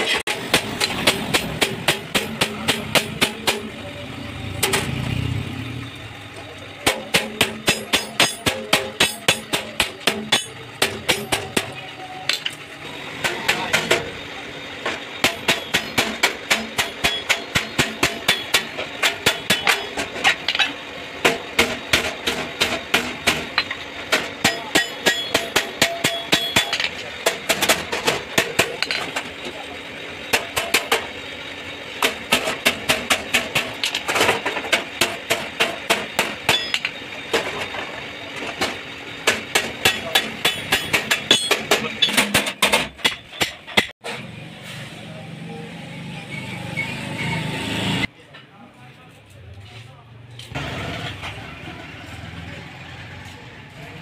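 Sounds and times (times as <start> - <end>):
hammer striking sheet metal: 0.0 - 3.8, 6.8 - 12.5, 15.2 - 29.2, 32.0 - 37.6, 38.6 - 44.0.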